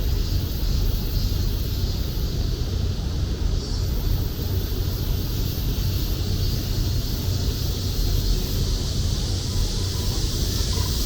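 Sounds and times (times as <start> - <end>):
cicadas buzzing: 3.6 - 11.0.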